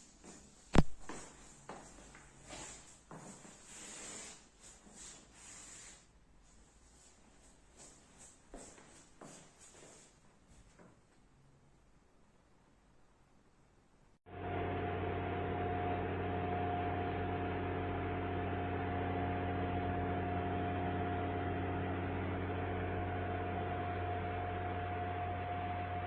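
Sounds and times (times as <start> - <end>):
constant whining tone: 14.3 - 26.0.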